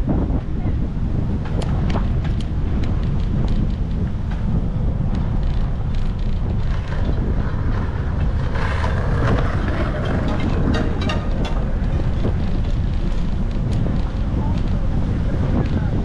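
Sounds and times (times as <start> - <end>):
wind buffeting microphone: 0.0 - 16.0
clicks and rattles: 9.3 - 14.8.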